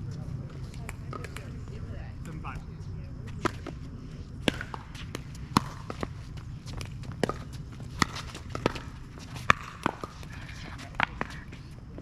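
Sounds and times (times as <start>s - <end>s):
shoe steps: 4.4s - 12.0s.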